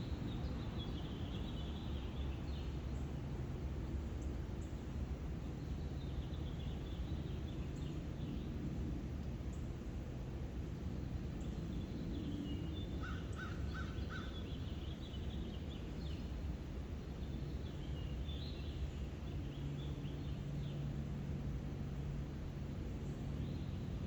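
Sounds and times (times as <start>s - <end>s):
low background rumble: 0.0s - 24.0s
birds chirping: 11.4s - 16.4s
lower bird calls: 12.2s - 15.6s.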